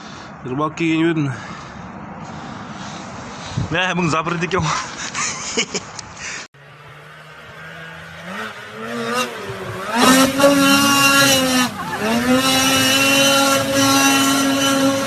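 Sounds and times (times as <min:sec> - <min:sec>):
motor engine revving: 0:06.6 - 0:15.0.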